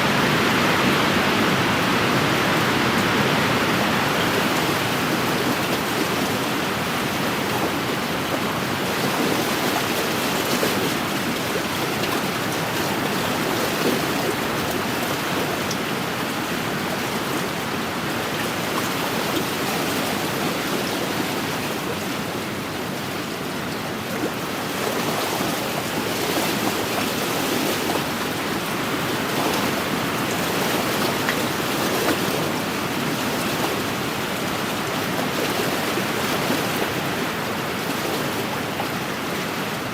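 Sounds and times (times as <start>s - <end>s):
lake waves washing on shore: 0.0s - 39.9s.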